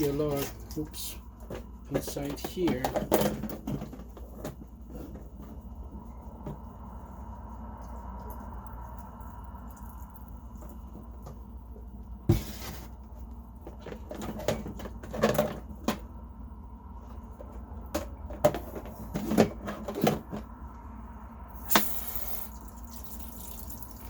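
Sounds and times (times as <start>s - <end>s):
steady low hum: 0.0s - 24.0s
plastic parts clicking and knocking: 1.4s - 4.6s, 13.7s - 16.1s.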